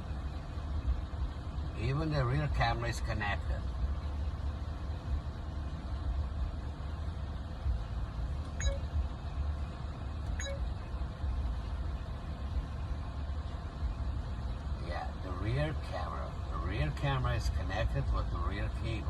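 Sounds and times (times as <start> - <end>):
car engine idling: 0.0 - 19.0
faint short beeps: 8.6 - 8.9, 10.4 - 10.8.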